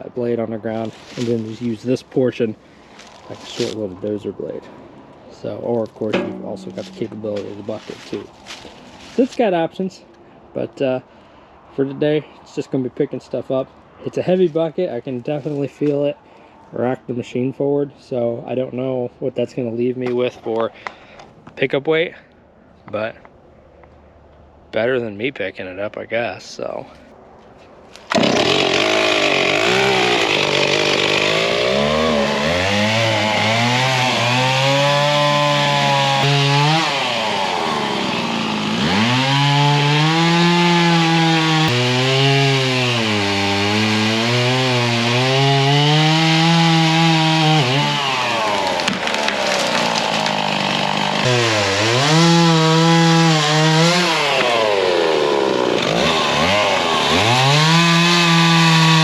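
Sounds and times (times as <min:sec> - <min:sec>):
chainsaw engine running hard: 0:06.2 - 0:08.6, 0:28.1 - 0:59.0.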